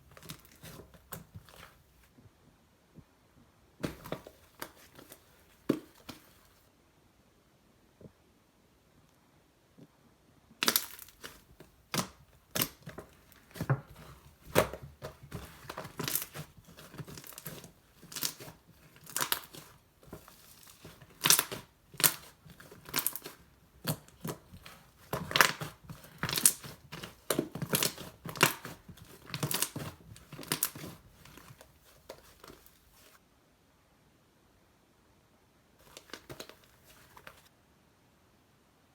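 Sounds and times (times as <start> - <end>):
slime popping and crackling: 10.6 - 31.6.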